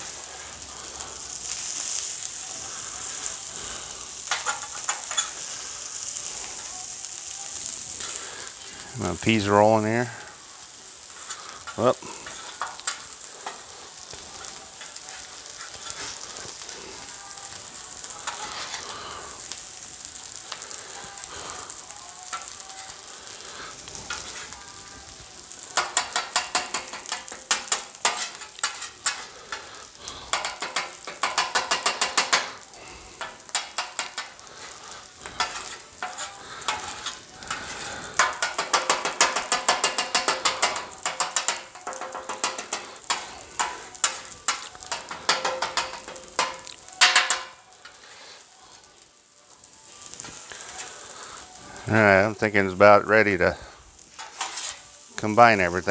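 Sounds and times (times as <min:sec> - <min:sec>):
food sizzling on a griddle: 0:00.0 - 0:55.9
spatulas clacking and scraping: 0:04.1 - 0:06.3, 0:10.7 - 0:17.1, 0:17.8 - 0:19.5, 0:23.4 - 0:24.6, 0:25.5 - 0:48.2, 0:54.0 - 0:55.9.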